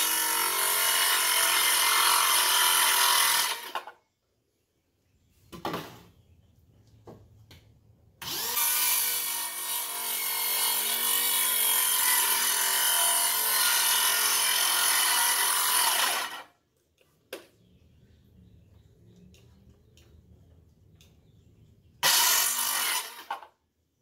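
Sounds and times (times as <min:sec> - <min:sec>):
circular saw cutting wood: 0:00.0 - 0:04.0, 0:08.2 - 0:16.5, 0:22.0 - 0:23.5.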